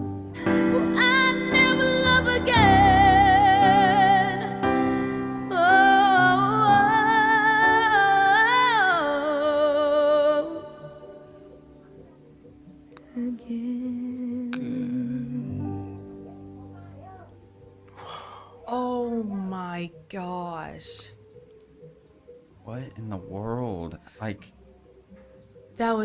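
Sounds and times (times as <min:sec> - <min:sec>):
soft instrumental accompaniment: 0:00.0 - 0:26.0
woman singing a slow ballad: 0:00.4 - 0:11.2, 0:13.0 - 0:16.0.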